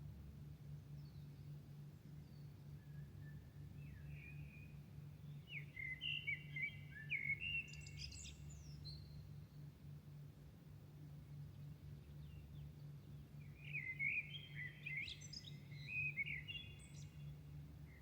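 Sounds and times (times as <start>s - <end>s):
songbird whistling and chirping: 2.3s - 4.7s, 5.3s - 9.1s, 13.6s - 17.2s.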